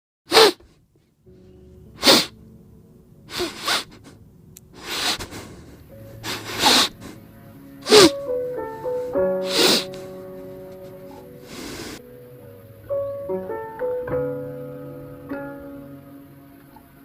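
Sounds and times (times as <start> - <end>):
person sneezing: 0.3 - 0.7, 2.0 - 2.4, 3.3 - 4.2, 7.8 - 8.2
soft background music: 0.6 - 17.0.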